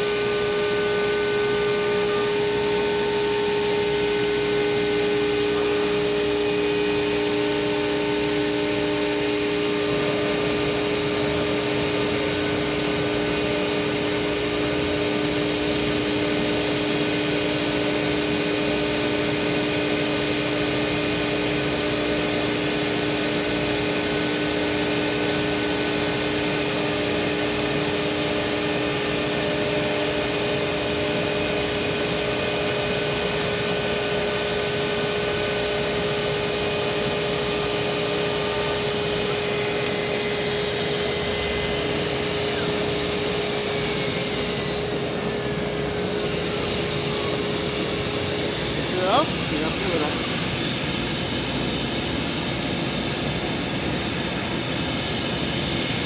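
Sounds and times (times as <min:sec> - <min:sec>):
router spindle whine: 0:00.0 - 0:56.0
cutting hiss: 0:39.8 - 0:51.6.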